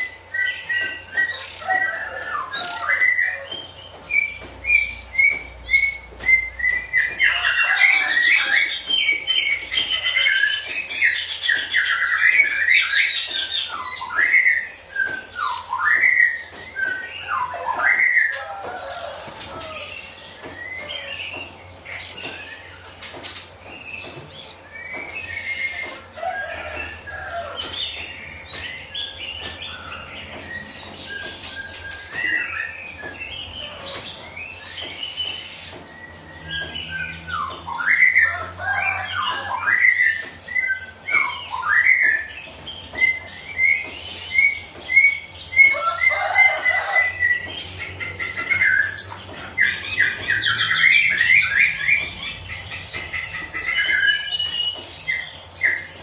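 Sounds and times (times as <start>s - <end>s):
bird singing whistled phrases: 23.9s - 27.6s.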